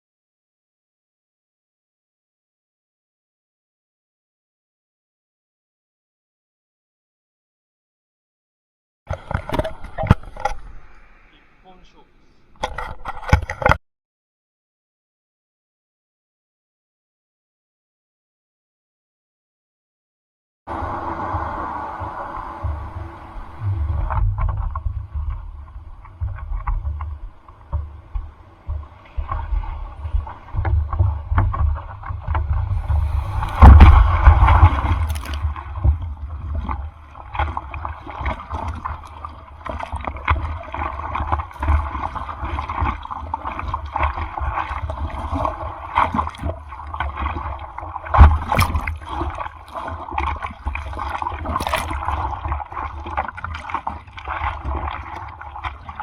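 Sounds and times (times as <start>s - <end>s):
sea water sloshing and splashing: 9.1s - 11.9s, 20.7s - 56.0s
heavy wind rumble: 20.7s - 37.1s.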